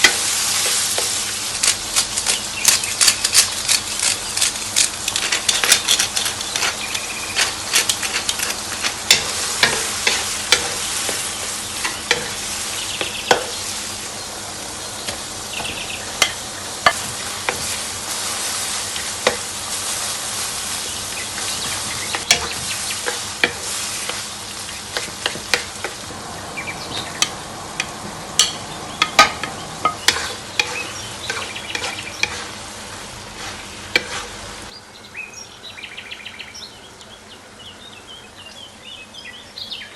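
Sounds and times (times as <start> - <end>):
utensil scraping a pan: 0.0 - 13.8, 15.1 - 26.0, 28.4 - 32.6, 33.4 - 34.5
food sizzling in a pan: 0.0 - 34.7.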